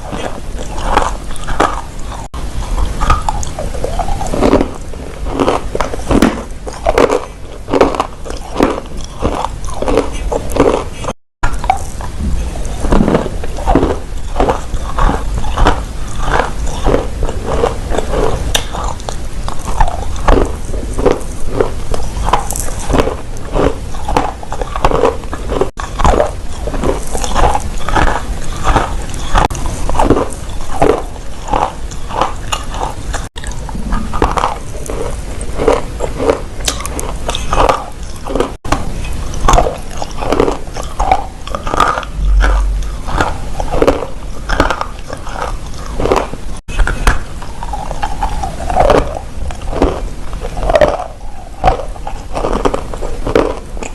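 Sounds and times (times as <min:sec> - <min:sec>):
dry clay crunching when chewed: 0:00.0 - 0:53.9.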